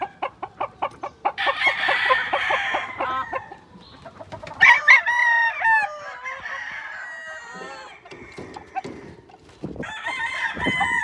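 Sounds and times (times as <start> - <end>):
chickens clucking: 0.0 - 11.0
rooster crowing: 1.4 - 3.6, 4.6 - 9.2, 9.8 - 11.0.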